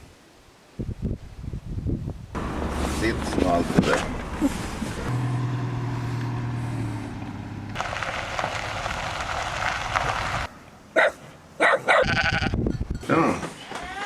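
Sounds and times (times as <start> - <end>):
crackling rushing noise: 7.7 - 10.6.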